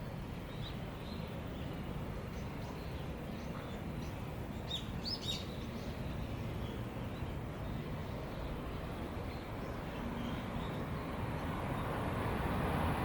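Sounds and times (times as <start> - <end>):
bird chirps: 0.5 - 8.6.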